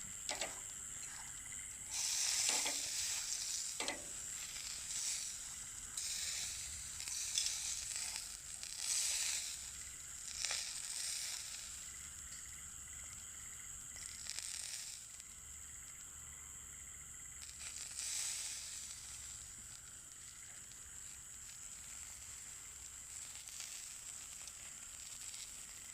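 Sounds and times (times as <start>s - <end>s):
meat sizzling on a grill: 0.0s - 25.9s
sharp pops: 0.2s - 11.7s.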